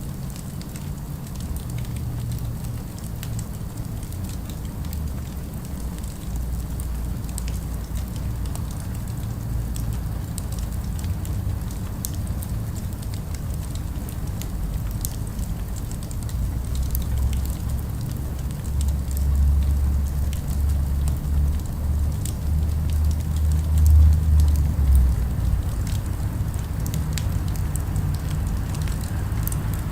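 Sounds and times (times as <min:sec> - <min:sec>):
city traffic rumble: 0:00.0 - 0:29.9
wood fire crackling and popping: 0:00.6 - 0:29.9.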